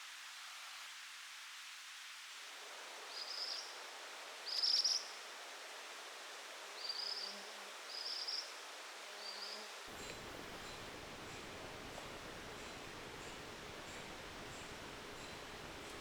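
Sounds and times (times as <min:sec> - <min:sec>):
faint outdoor background hiss: 0:00.0 - 0:16.0
bird chirping: 0:10.0 - 0:16.0.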